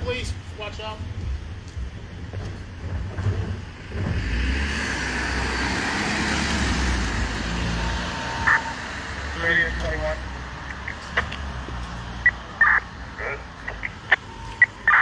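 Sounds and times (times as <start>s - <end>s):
vehicle driving past: 3.7s - 12.4s.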